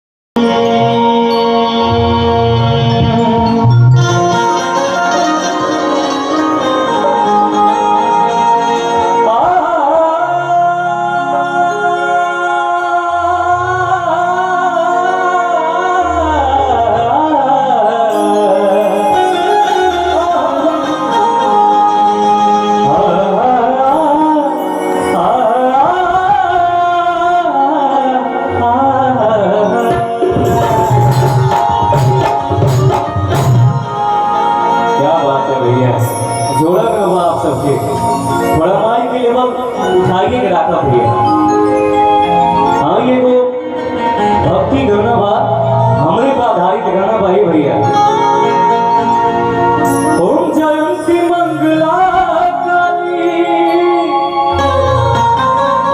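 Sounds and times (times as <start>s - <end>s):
sustained low instrumental notes: 0.4s - 27.3s, 28.0s - 55.9s
person singing ornamented line: 0.4s - 44.5s, 48.1s - 55.9s
drum strokes: 30.4s - 34.0s.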